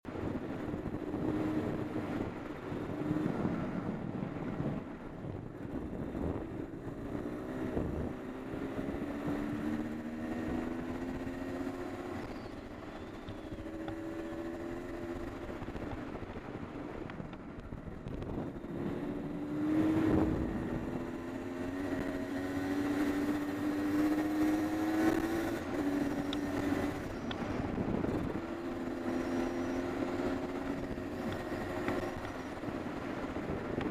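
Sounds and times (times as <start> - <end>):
two-stroke motorcycle engine revving: 5.6 - 15.9, 18.0 - 33.9.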